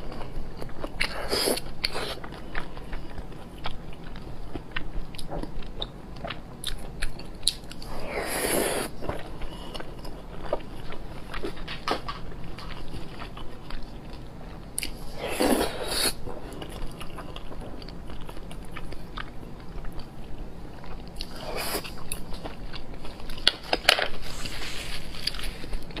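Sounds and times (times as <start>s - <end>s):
chewing and mouth clicks: 0.2s - 7.9s.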